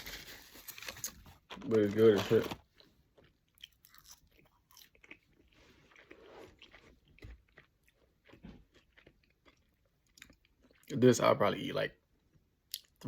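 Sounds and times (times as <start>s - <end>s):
chewing food: 0.8s - 10.9s.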